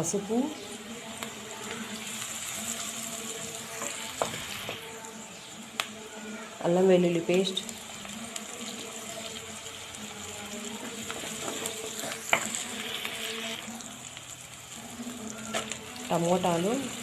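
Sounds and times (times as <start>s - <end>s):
onions sizzling in hot oil: 0.0s - 17.0s
spoon stirring in a clay pot: 10.4s - 13.6s.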